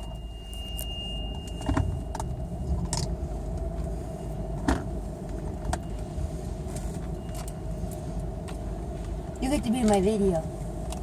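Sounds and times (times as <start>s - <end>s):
low rumble inside car wash: 0.0s - 11.0s.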